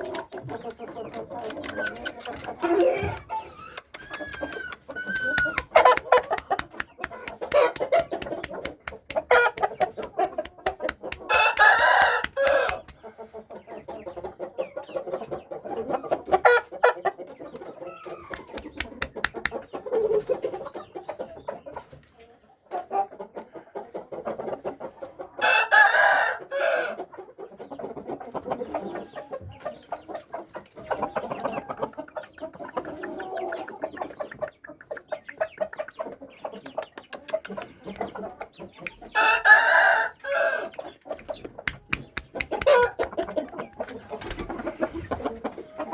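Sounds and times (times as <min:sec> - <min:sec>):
chickens clucking: 0:00.0 - 0:45.9
roosters crowing: 0:11.2 - 0:12.9, 0:25.4 - 0:27.0, 0:39.1 - 0:41.4, 0:42.5 - 0:43.4.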